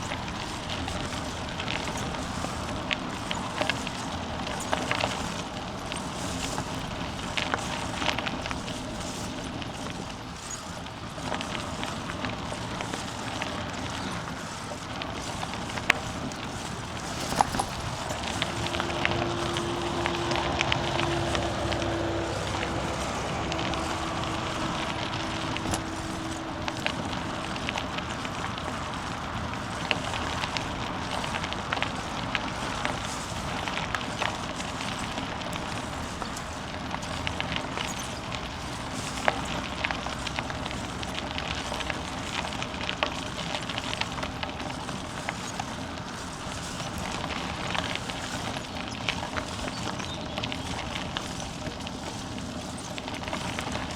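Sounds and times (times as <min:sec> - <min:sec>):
bicycle tyres crunching on forest path: 0:00.0 - 0:53.9
steady hum: 0:16.4 - 0:29.2.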